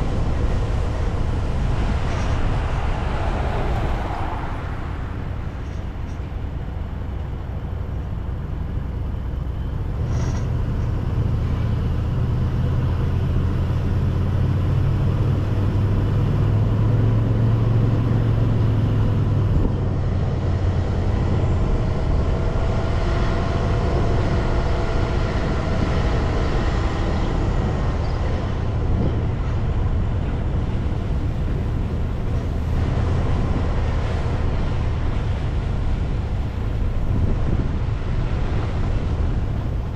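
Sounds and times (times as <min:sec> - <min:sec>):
car engine and road noise: 0:00.0 - 0:39.9
faint whining tones: 0:19.4 - 0:38.3.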